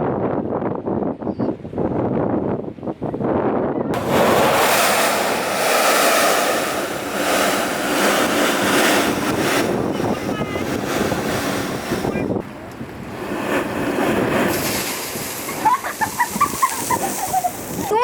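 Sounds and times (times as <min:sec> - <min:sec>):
blowhole rush of air and spray: 0:03.9 - 0:18.0
surf: 0:04.0 - 0:18.0.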